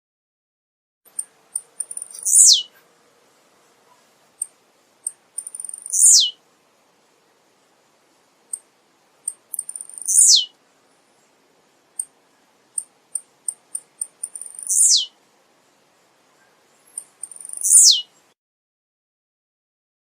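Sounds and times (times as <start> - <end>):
bird singing ticks and buzzy phrase: 1.1 - 2.8, 4.4 - 6.4, 8.5 - 18.4.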